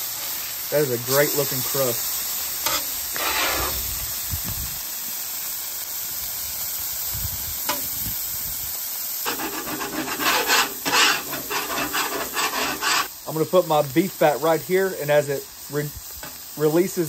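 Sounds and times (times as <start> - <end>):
burgers sizzling on griddle: 0.0 - 17.0
metal spatula scraping griddle: 2.6 - 3.9, 9.2 - 13.1.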